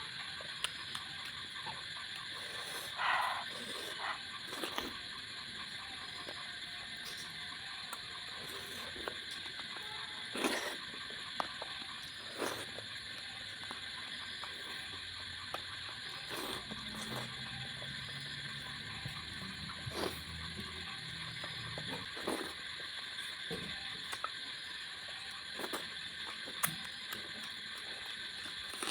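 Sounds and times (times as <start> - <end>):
chewing and smacking: 0.2 - 5.1, 5.7 - 28.9.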